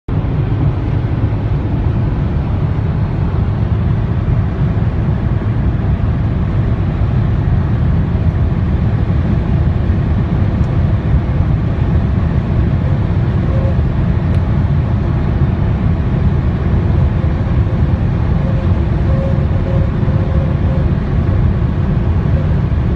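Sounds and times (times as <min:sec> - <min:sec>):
faint whine: 0:00.1 - 0:22.9
road and wind noise: 0:00.1 - 0:22.9.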